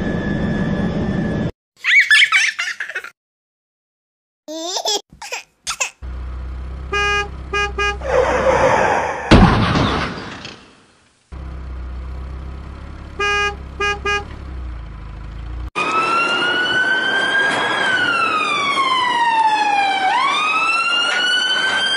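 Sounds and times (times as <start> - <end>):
horn beeps: 6.9 - 8.2, 13.1 - 14.3
loud bang: 9.2 - 10.8
siren wailing: 15.8 - 21.9.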